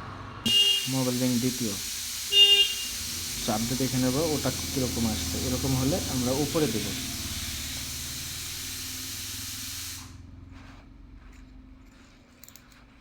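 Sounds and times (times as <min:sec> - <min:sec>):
steady hiss: 0:00.5 - 0:10.2.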